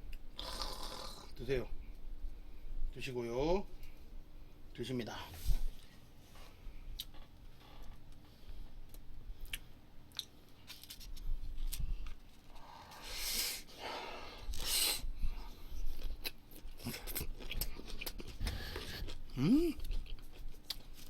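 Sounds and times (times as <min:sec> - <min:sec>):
close chewing: 0:15.8 - 0:21.0.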